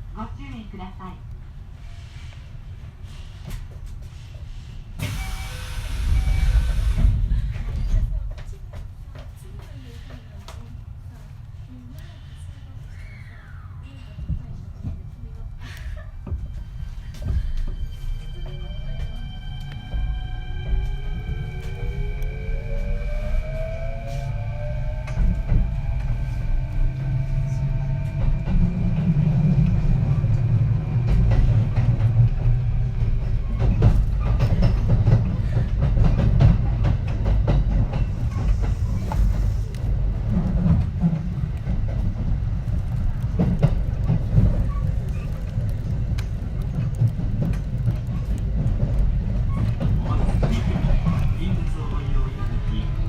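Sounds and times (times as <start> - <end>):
train wheels rumbling on rail: 0.0 - 53.0
electric train inverter whining: 18.3 - 34.0
clacks over rail joints: 30.4 - 53.0.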